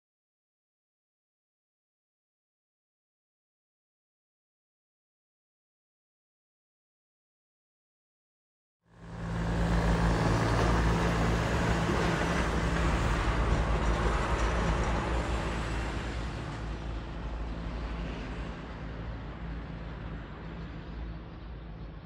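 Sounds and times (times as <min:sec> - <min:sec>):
electric train running past: 0:08.9 - 0:19.8.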